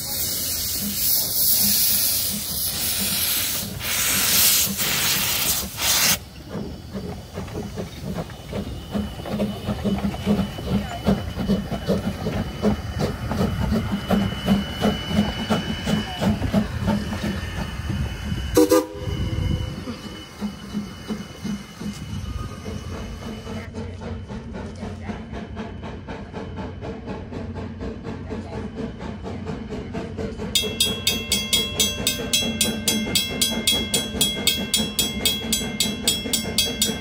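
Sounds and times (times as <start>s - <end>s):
train wheels clicking over joints: 0.0s - 37.0s
high squeal: 8.5s - 23.6s.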